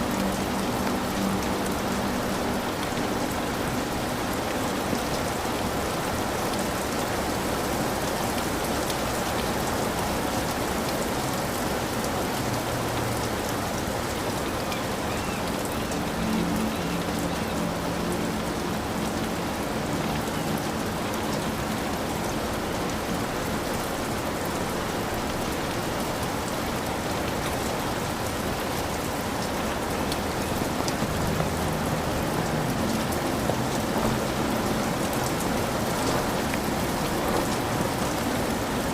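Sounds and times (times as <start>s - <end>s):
heavy rain on a roof: 0.0s - 38.9s.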